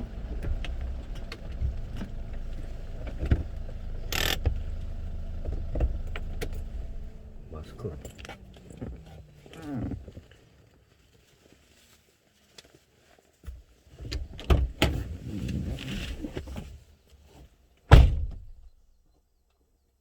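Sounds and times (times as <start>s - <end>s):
loud thump: 17.9s - 18.5s.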